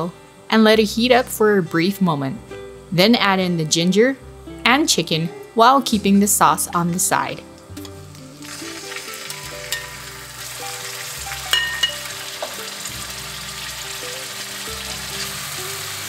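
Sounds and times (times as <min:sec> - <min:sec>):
chicken sizzling in hot oil: 0:07.6 - 0:16.0
metal utensil clinking on wok: 0:09.7 - 0:10.0, 0:11.5 - 0:12.6.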